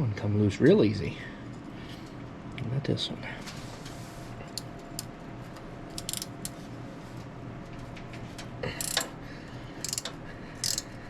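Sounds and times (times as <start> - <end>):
wrench clicking on bolt: 5.9 - 6.6, 8.8 - 9.1, 9.8 - 10.9.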